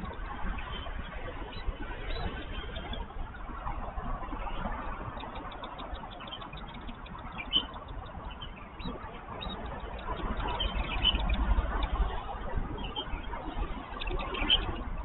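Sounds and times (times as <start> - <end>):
bird chirps: 4.9 - 12.0, 12.8 - 15.0.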